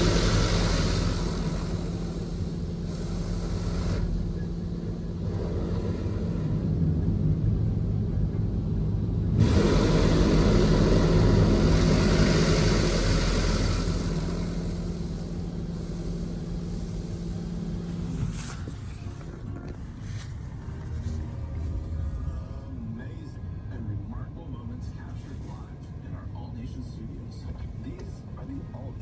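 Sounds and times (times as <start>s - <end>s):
spray water rushing on vehicle: 0.0s - 6.7s, 9.4s - 18.8s
car wash machine humming: 0.0s - 22.6s.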